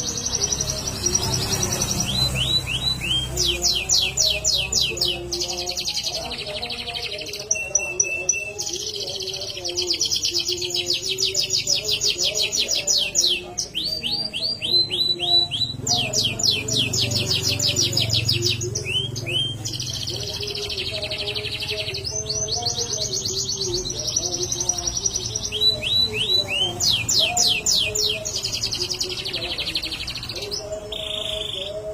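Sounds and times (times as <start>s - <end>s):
canary singing trills: 0.0s - 31.9s.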